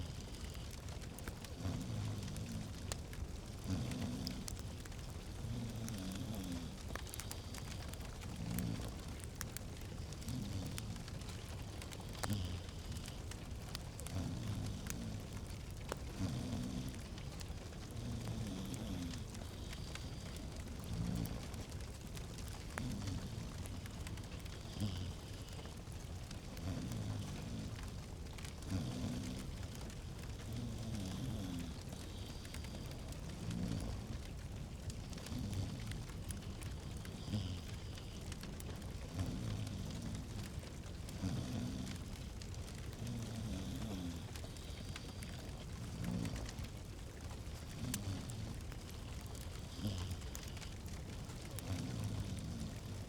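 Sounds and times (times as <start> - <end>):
log fire crackling: 0.0 - 53.0.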